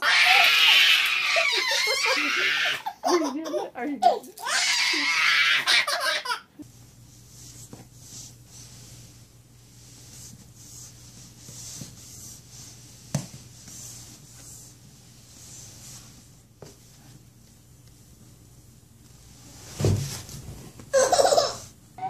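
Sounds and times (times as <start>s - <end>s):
hands brushing fur: 0.1s - 3.5s, 6.6s - 17.3s.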